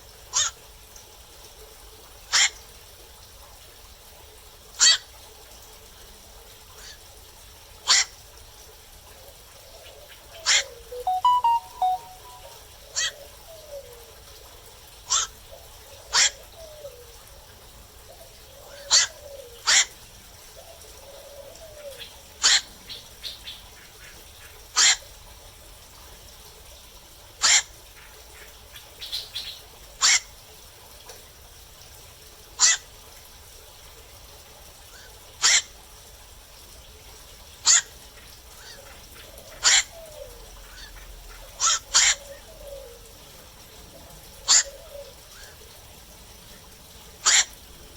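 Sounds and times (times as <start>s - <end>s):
night herons calling: 21.9s - 24.2s, 38.6s - 43.0s, 44.4s - 45.6s, 47.2s - 47.6s.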